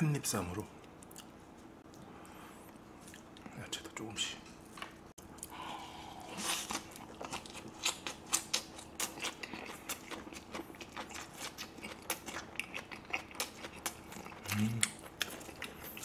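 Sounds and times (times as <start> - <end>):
person chewing crunchy wrap: 5.2 - 16.0.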